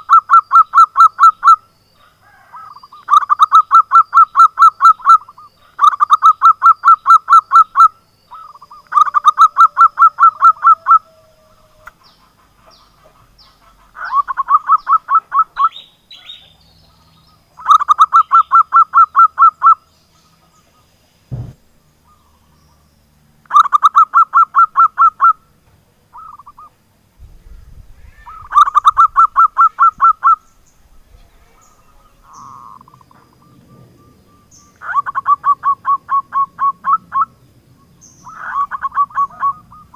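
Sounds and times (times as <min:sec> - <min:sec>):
dove cooing: 0:00.0 - 0:17.0, 0:17.6 - 0:19.8, 0:23.5 - 0:25.4, 0:26.1 - 0:26.7, 0:27.4 - 0:37.4, 0:38.2 - 0:39.9.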